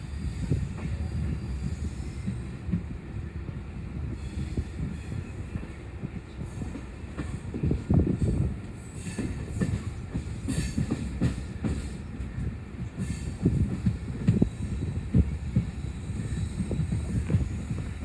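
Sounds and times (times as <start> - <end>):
train rumbling along track: 0.0 - 18.0.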